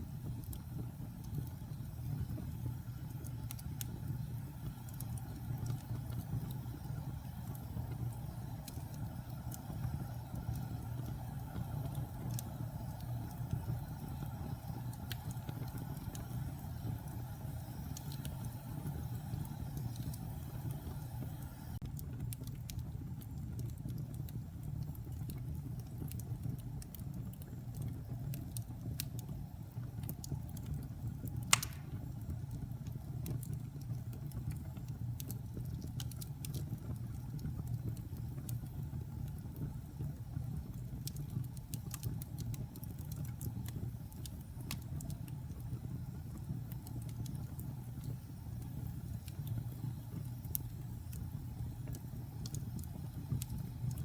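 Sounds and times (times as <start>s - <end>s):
wood fire crackling: 0.0s - 54.0s
loud sharp pop: 31.5s - 32.0s.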